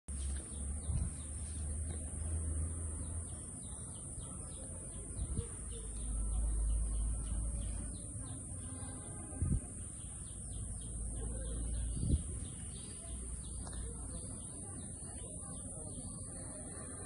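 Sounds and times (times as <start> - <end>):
small birds chirping: 0.1 - 17.0
low microphone rumble: 0.5 - 3.4, 4.9 - 14.2.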